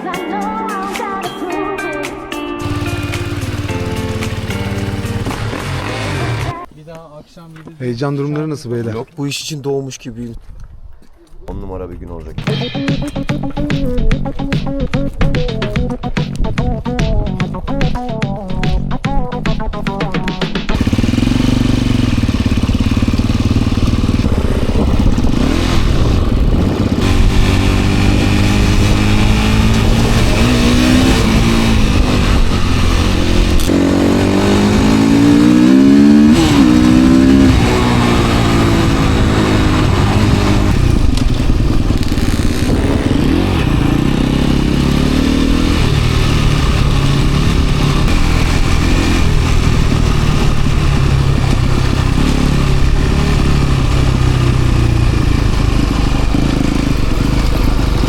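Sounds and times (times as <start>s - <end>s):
dirt bike engine revving: 2.6s - 6.6s, 20.7s - 58.0s.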